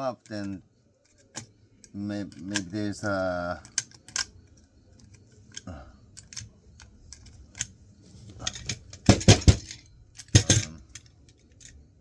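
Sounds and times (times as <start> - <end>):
metal tools clicking and clattering: 8.4 - 11.8
sharp knocks: 9.0 - 9.8.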